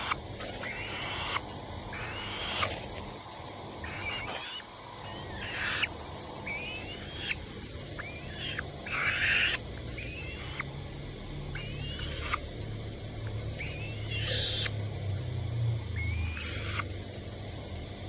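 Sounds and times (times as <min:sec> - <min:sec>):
falcon screeching: 0:00.0 - 0:02.8, 0:03.8 - 0:10.7, 0:11.5 - 0:12.4, 0:13.6 - 0:14.7.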